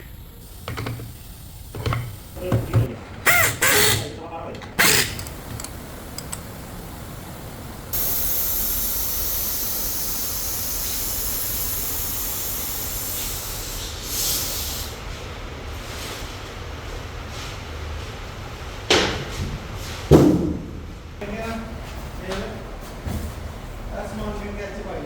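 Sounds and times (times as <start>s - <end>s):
loud steady hiss: 0.0s - 15.8s.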